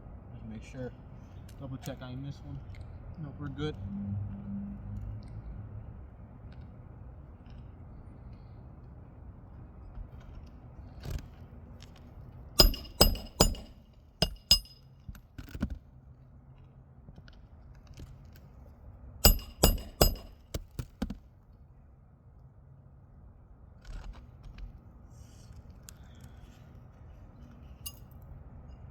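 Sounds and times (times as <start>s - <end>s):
hammer nailing shingles: 12.6s - 14.8s, 19.2s - 21.2s.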